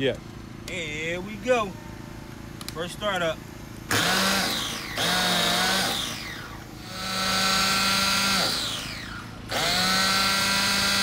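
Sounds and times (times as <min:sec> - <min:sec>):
electric starter motor whir: 0:03.8 - 0:11.0.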